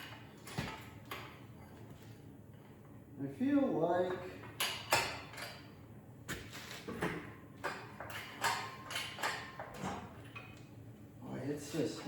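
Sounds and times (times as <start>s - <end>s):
metallic knocks and clanks: 4.0s - 5.7s, 6.8s - 10.6s.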